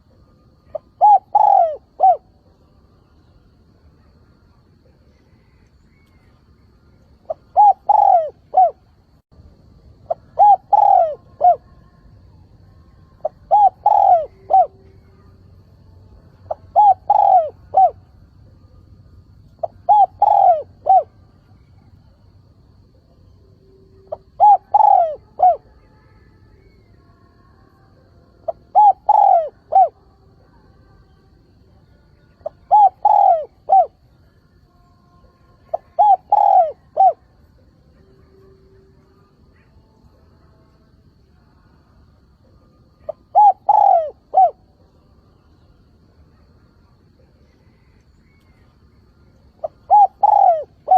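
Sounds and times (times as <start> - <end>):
dove cooing: 0.6 - 2.4, 7.2 - 8.9, 10.1 - 11.8, 13.2 - 15.3, 16.4 - 18.0, 19.5 - 21.9, 24.0 - 25.8, 28.4 - 30.0, 32.4 - 34.0, 35.6 - 37.4, 43.0 - 44.7, 49.5 - 50.9.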